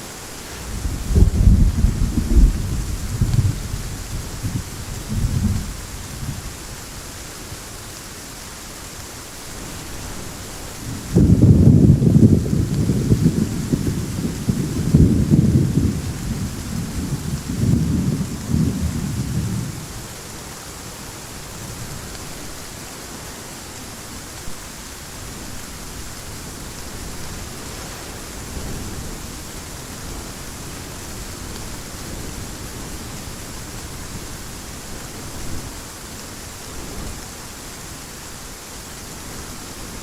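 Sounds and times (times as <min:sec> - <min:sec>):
heavy rain falling: 0:00.0 - 0:40.0
thunder rumbling: 0:00.4 - 0:06.8, 0:10.7 - 0:20.2.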